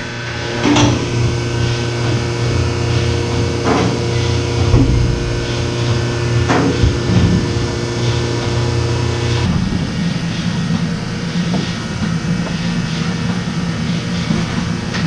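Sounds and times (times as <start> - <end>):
milking equipment humming: 0.1 - 15.0
sharp knocks and clatters: 4.6 - 8.2.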